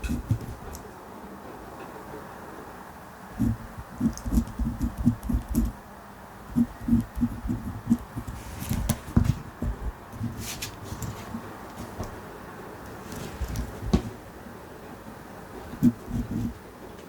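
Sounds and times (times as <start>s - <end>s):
pen writing on paper: 0.0s - 0.7s, 3.4s - 5.8s, 6.5s - 12.0s, 13.1s - 14.1s, 15.8s - 16.6s.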